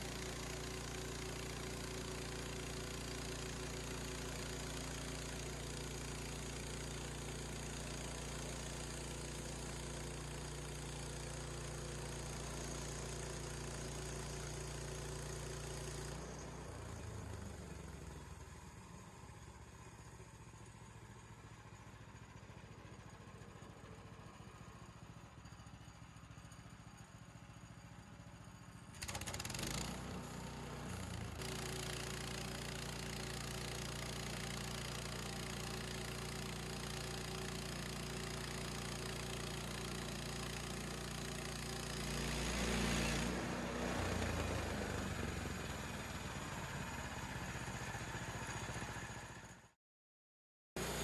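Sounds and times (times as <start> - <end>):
sawmill engine running: 0.0 - 17.8, 29.2 - 49.6, 50.8 - 51.0.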